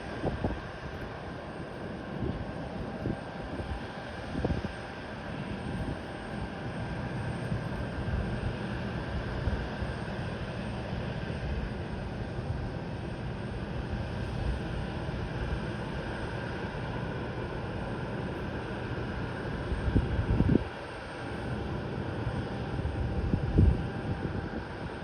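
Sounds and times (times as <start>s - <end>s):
wind buffeting microphone: 0.0s - 1.2s, 1.8s - 5.0s, 19.8s - 20.8s, 22.8s - 25.0s
distant jet engines running: 0.0s - 25.0s.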